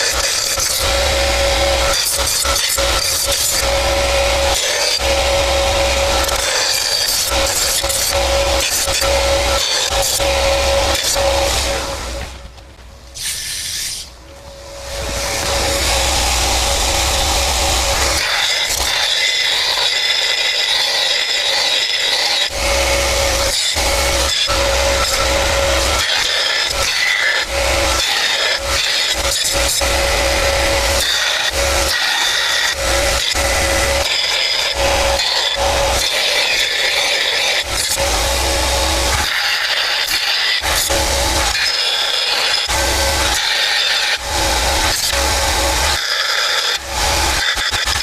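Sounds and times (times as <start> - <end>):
power tool grinding: 0.0 - 12.6, 13.2 - 48.0
scraping against material: 11.0 - 14.2.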